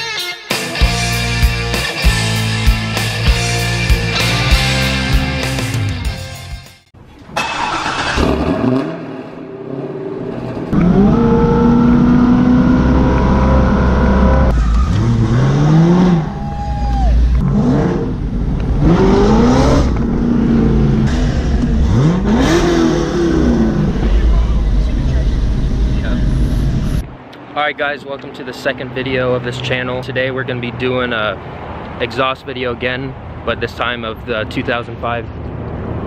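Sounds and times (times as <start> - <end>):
car engine revving: 7.4 - 16.5, 17.1 - 27.2.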